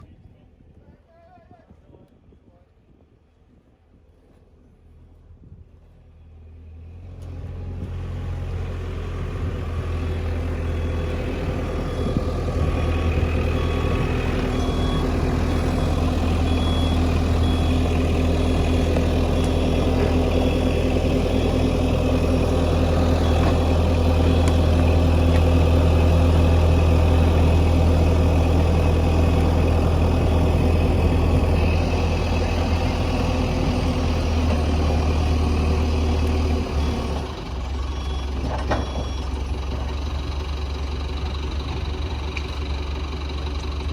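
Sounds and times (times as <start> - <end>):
large engine running: 5.0 - 43.9
high warning beeps: 13.1 - 18.6.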